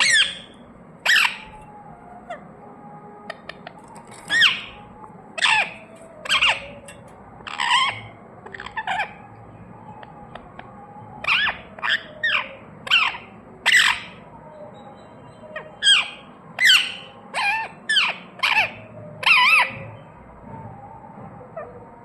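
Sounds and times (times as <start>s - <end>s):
parrot squawking: 0.0s - 2.4s, 3.3s - 4.8s, 5.4s - 9.3s, 11.2s - 14.2s.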